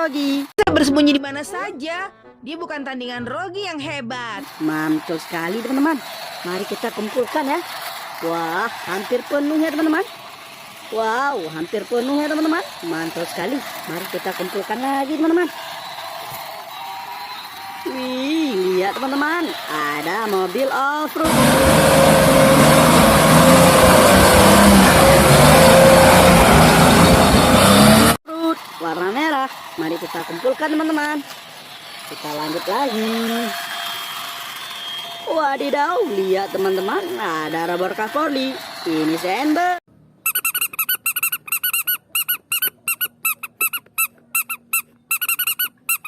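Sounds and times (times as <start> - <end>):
rapid high-pitched squeaks: 4.4 - 28.2, 30.5 - 39.1, 40.2 - 46.0
car engine running: 21.2 - 28.2.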